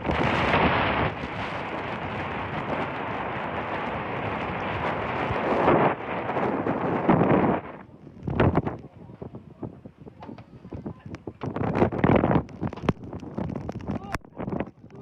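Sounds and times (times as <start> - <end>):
storm wind and rain: 0.0 - 15.0
wind buffeting microphone: 0.0 - 15.0.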